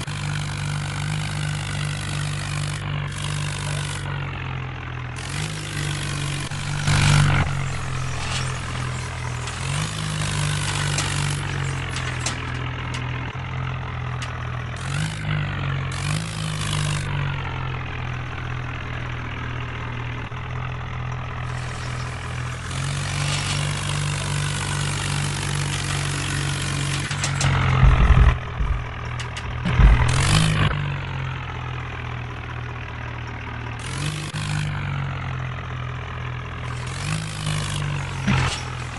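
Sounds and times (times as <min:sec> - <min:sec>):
tractor engine running: 0:00.0 - 0:38.9
loud jolting bumps: 0:27.2 - 0:30.6.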